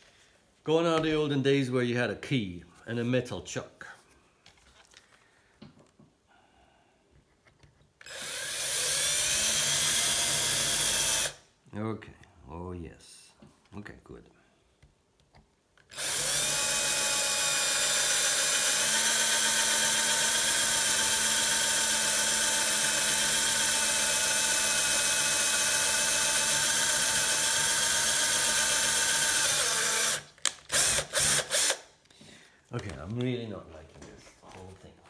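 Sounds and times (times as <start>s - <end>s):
drill trigger bursts: 8.0s - 11.4s, 15.9s - 31.9s
power drill whining: 8.0s - 11.4s, 15.9s - 31.9s.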